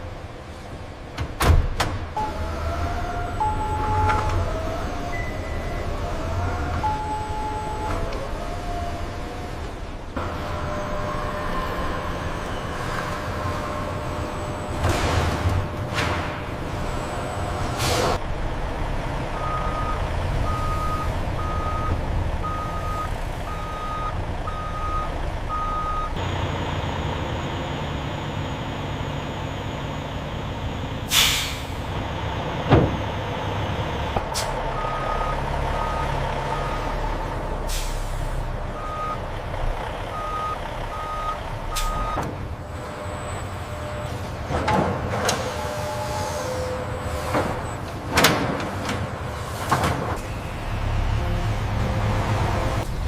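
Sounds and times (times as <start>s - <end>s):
reversing alarm beeping: 3.4s - 4.4s, 5.1s - 6.0s, 6.8s - 8.0s, 19.4s - 26.2s, 40.1s - 42.3s.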